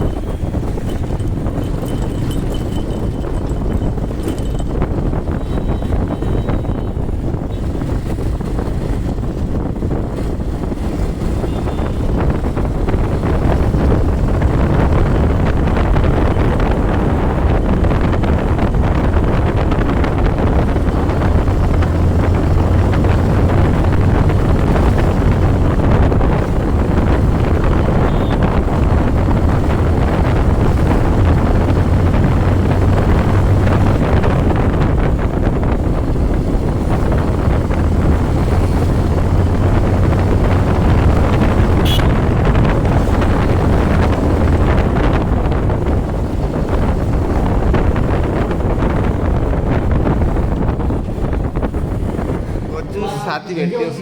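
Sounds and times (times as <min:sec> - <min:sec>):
motorcycle engine running: 0:00.0 - 0:52.7
wind noise on microphone: 0:00.0 - 0:54.0.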